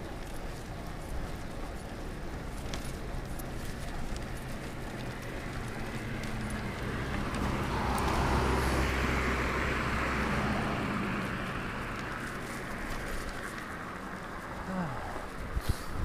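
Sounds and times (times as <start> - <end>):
car passing: 0.0 - 16.0
road and wind rumble: 0.0 - 16.0.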